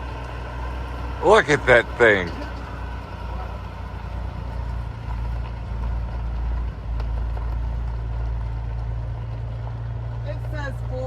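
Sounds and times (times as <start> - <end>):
truck engine rumbling: 1.2 - 2.6.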